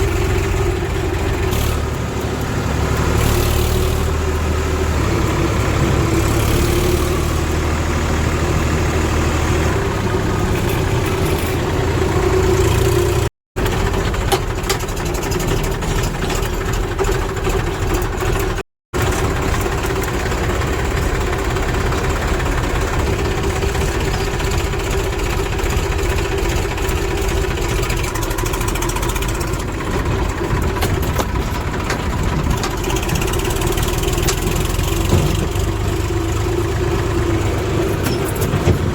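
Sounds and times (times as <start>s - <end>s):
diesel machinery engine running: 0.0s - 38.9s.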